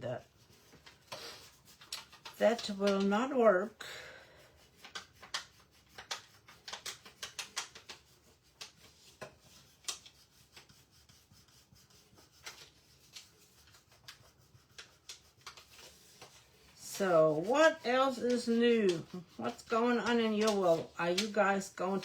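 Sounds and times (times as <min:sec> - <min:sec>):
hands rubbing craft materials: 0:00.1 - 0:22.0
small taps and clicks: 0:04.8 - 0:10.7.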